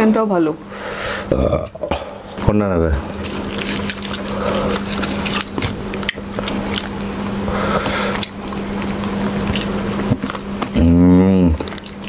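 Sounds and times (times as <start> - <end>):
steady hum: 0.0 - 12.0
chicken being torn by hand: 3.1 - 10.8
chewing with mouth clicks: 3.1 - 12.0.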